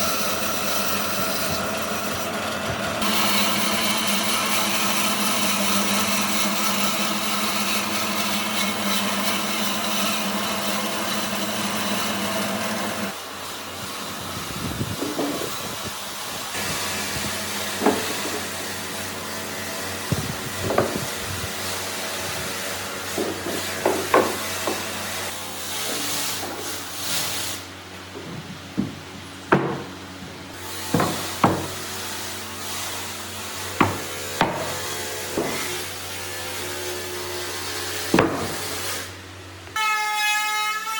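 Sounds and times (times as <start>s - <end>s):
hammer knocking on wood: 17.8s - 18.5s, 20.6s - 21.1s, 23.2s - 24.8s, 28.2s - 30.0s, 30.9s - 31.8s, 33.8s - 35.7s, 38.1s - 38.6s.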